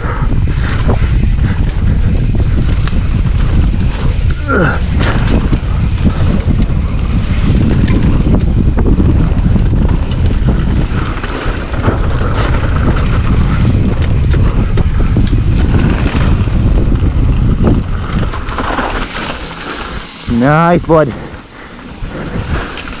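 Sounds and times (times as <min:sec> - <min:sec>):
bike rattling and knocking: 0:00.0 - 0:23.0
wind buffeting microphone: 0:00.0 - 0:23.0
tyres rumbling over dirt: 0:00.4 - 0:23.0.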